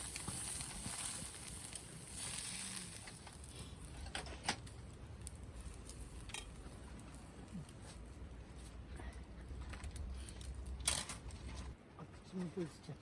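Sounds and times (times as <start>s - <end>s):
campfire hiss with crackling: 0.0s - 8.2s.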